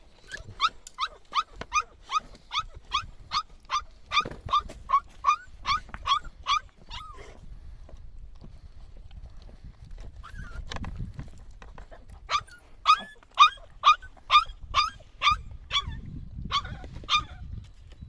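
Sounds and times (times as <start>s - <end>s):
dog barking: 0.6s - 7.3s, 12.3s - 17.4s.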